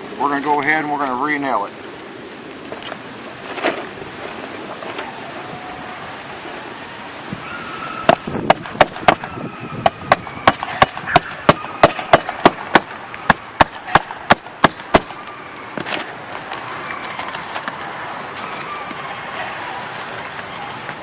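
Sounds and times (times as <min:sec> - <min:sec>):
hammer striking roofing nails: 0:08.1 - 0:09.2, 0:09.8 - 0:15.2.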